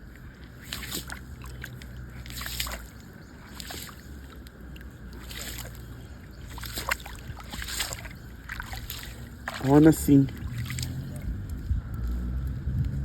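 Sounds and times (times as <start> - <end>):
water bubbling and gurgling: 0.0 - 12.0
low rumble: 10.2 - 13.0.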